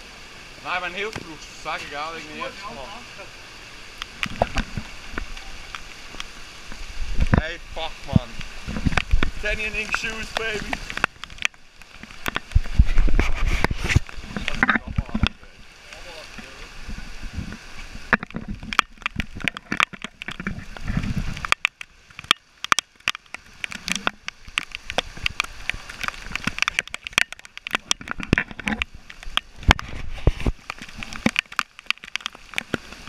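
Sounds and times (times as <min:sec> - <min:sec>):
heavy rain on a flooded street: 0:00.0 - 0:33.0
raindrops splattering close by: 0:00.0 - 0:33.0.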